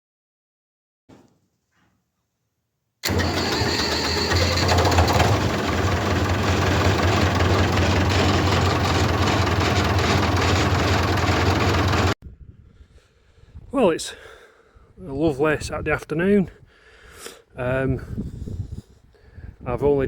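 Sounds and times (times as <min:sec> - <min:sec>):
diesel tractor engine rumbling: 0:03.0 - 0:12.2.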